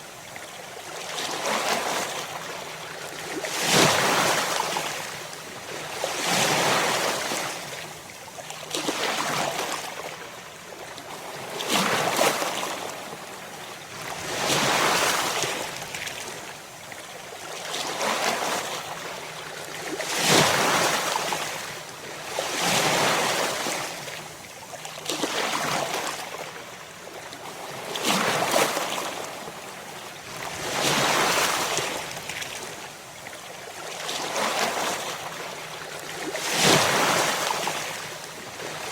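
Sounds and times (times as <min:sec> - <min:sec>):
ocean waves breaking on shore: 0:27.5 - 0:32.8, 0:33.8 - 0:38.9.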